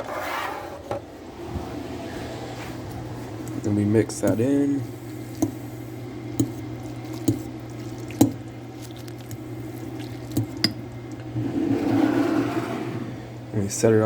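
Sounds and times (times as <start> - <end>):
noodles squishing while stirred: 3.3 - 12.0
utensil clinking against bowl: 4.1 - 4.5, 6.4 - 10.9.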